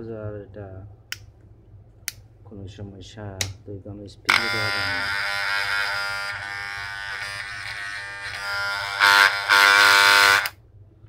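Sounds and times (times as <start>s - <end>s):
hair trimmer buzzing: 4.3s - 10.6s.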